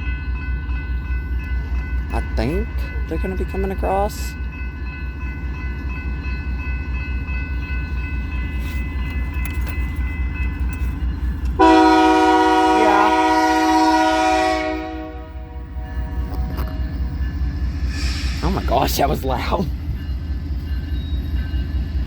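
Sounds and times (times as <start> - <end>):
diesel locomotive rumble: 1.3 - 22.0
train air horn blast: 11.6 - 15.6.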